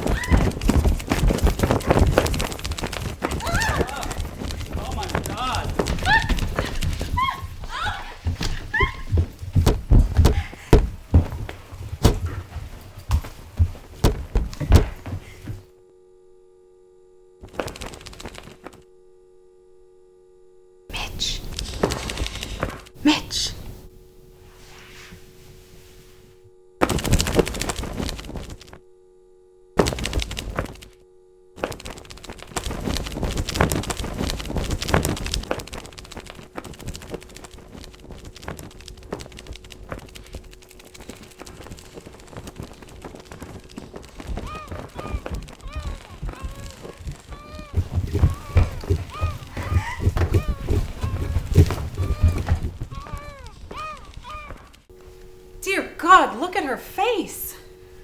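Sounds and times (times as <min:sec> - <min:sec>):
loud knocks and thuds: 0:00.0 - 0:15.6, 0:26.8 - 0:28.6, 0:29.8 - 0:30.9, 0:41.4 - 0:54.6
rapid flapping and clattering: 0:00.0 - 0:15.7, 0:17.4 - 0:18.9, 0:20.9 - 0:23.8, 0:26.8 - 0:28.8, 0:29.8 - 0:31.0, 0:31.6 - 0:55.1
faint electrical hum: 0:00.0 - 0:58.0.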